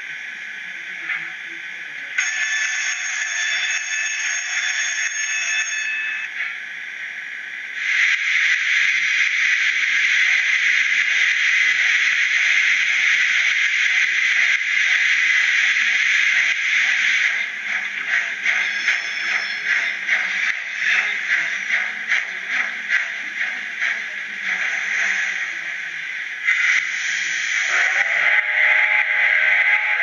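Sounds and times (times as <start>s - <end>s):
loud steam hiss: 7.0s - 30.0s.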